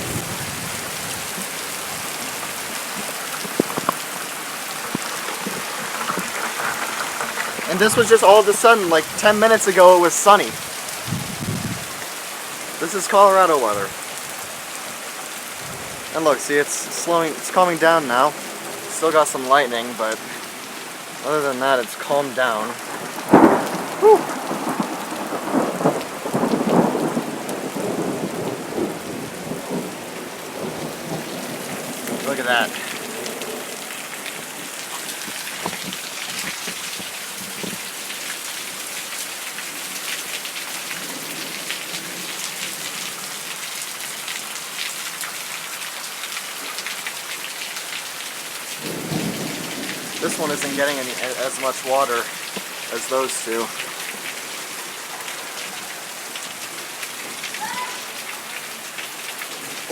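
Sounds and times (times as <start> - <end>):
heavy rain pouring: 0.0 - 59.9
single raindrops ticking: 2.2 - 11.1, 30.8 - 59.9.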